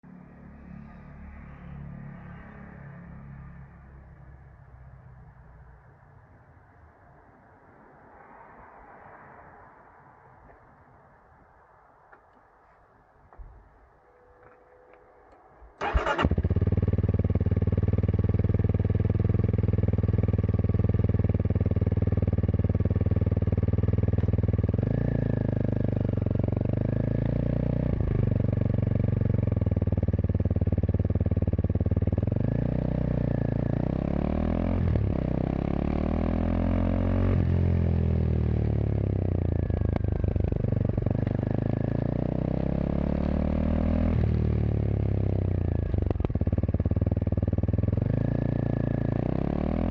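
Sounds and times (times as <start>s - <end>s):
motorcycle engine idling and revving: 0.0s - 7.2s, 13.3s - 49.9s.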